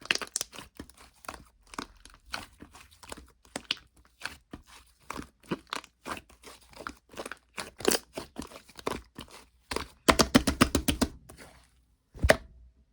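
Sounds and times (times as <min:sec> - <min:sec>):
slime squished by hand: 0:00.0 - 0:12.4.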